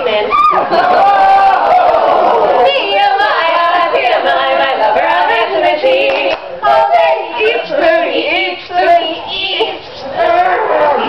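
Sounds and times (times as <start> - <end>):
women singing: 2.4 - 11.0.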